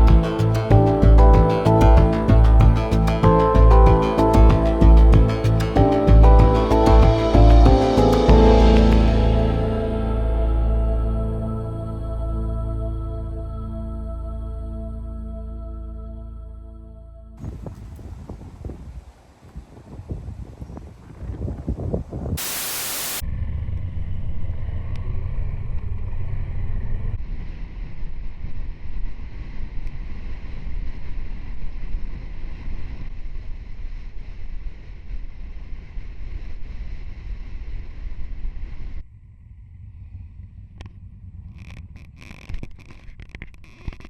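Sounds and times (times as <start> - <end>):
motorcycle engine drone: 0.0 - 15.9, 22.4 - 30.1
wind rushing over microphone: 17.4 - 43.6
loud hiss: 22.4 - 23.2.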